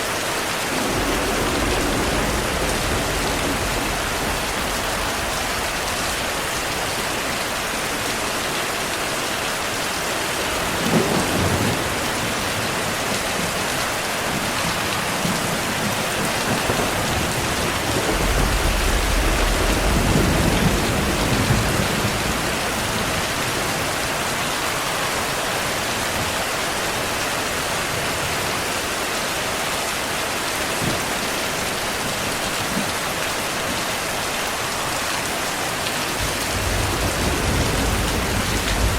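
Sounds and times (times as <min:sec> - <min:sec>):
heavy rain: 0:00.0 - 0:38.9
thunder cracks: 0:00.7 - 0:07.5, 0:14.5 - 0:24.0, 0:36.2 - 0:38.9
deep roll of thunder: 0:00.7 - 0:07.8, 0:14.3 - 0:24.1, 0:36.2 - 0:38.9.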